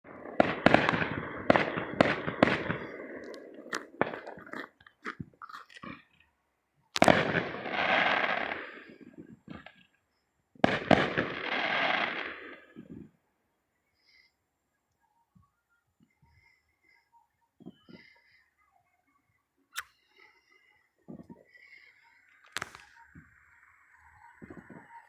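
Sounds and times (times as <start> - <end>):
fireworks bangs and pops: 0.2 - 4.8, 7.0 - 9.8, 10.6 - 13.1
crackling hiss: 7.0 - 9.9, 19.7 - 25.0.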